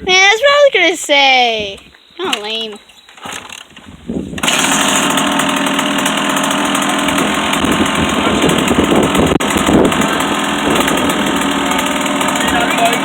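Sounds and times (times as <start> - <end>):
dirt bike engine running: 4.3 - 13.0.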